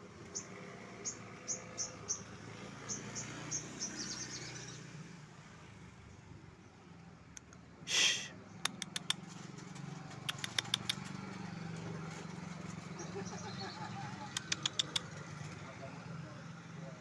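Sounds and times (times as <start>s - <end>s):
distant traffic hum: 0.0s - 17.0s
songbird calling: 0.3s - 2.3s.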